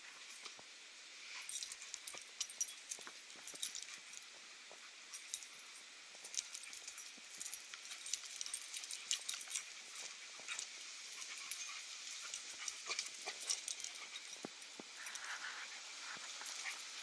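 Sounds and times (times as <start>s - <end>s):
paws and claws scuffling: 1.4s - 4.4s, 6.2s - 17.0s
puppies making dog noises: 6.3s - 17.0s.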